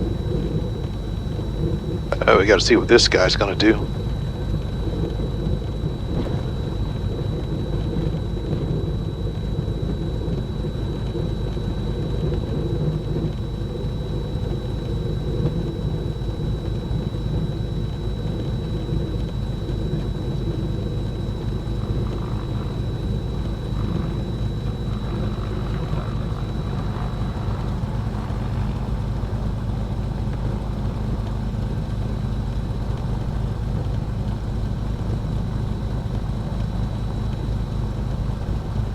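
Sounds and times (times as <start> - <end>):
thin high whine: 0.0 - 38.9
twin piston engines droning: 0.0 - 38.9.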